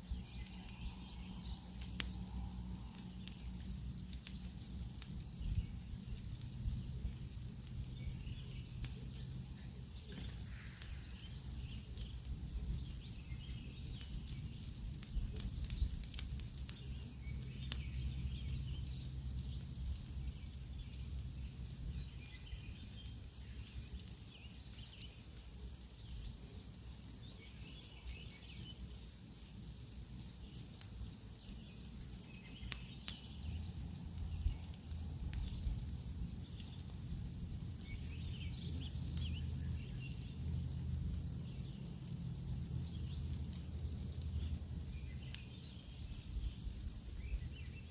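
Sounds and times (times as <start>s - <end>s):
birds chirping: 0.0s - 29.5s
campfire crackling: 0.0s - 47.9s.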